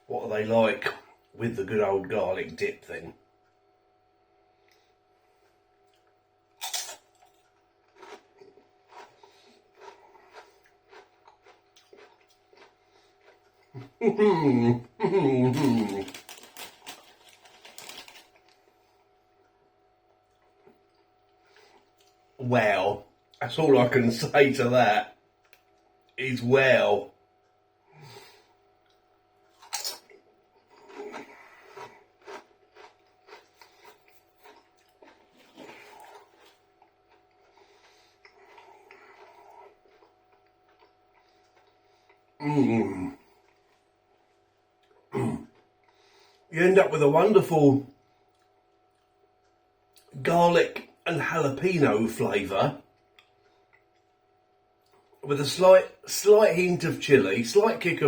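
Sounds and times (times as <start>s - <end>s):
crunchy chewing: 4.7s - 14.0s, 15.0s - 22.2s, 28.1s - 42.3s
crunchy chip bite: 6.6s - 13.4s, 15.2s - 18.6s, 29.6s - 37.2s.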